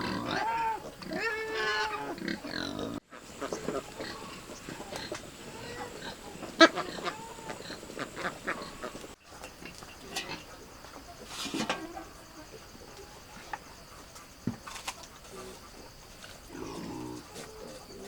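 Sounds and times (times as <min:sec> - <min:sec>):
farm animals calling: 0:00.0 - 0:18.0.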